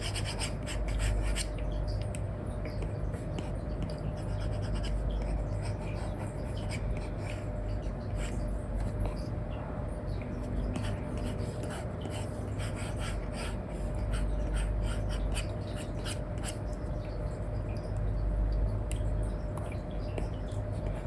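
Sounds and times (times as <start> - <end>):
stylus scratching and tapping on screen: 0.0 - 1.7, 2.8 - 9.3
steady low hum: 0.0 - 21.0.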